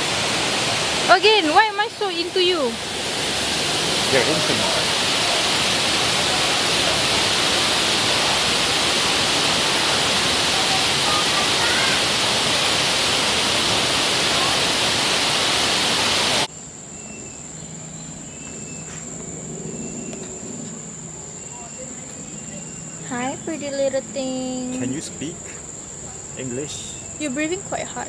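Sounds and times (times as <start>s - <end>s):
rushing water: 0.0s - 16.5s
faint high steady whine: 0.0s - 28.0s
faint chirps: 16.5s - 27.9s.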